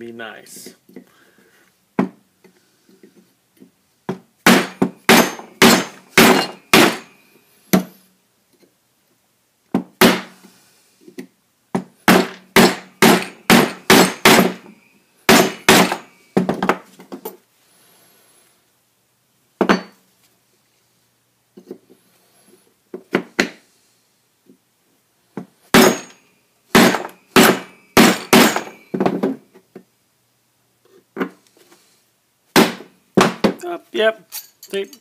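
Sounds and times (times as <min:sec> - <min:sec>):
hammer striking metal: 0:04.5 - 0:07.2, 0:12.1 - 0:14.7, 0:15.3 - 0:16.1, 0:25.8 - 0:26.2, 0:26.8 - 0:28.8.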